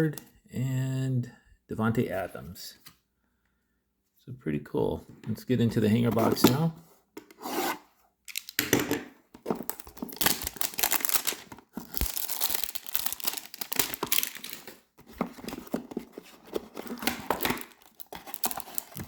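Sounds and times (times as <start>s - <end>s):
packaging tearing and crinkling: 9.5s - 19.0s.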